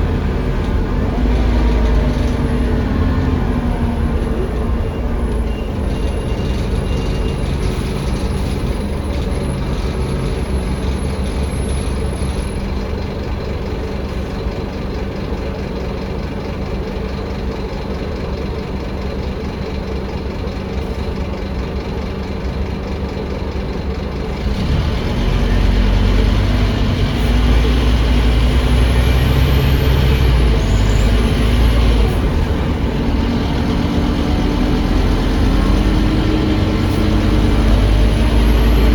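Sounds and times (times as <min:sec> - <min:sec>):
diesel bus engine from inside: 0:00.0 - 0:38.9
road noise: 0:00.0 - 0:38.9.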